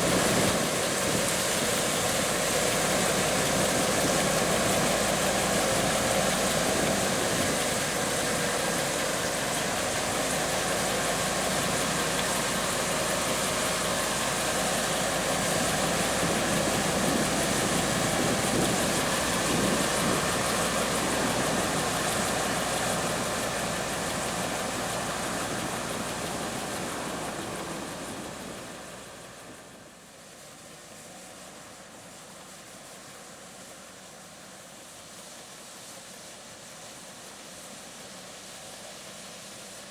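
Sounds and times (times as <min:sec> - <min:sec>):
diesel farm machinery running: 0:00.0 - 0:30.1.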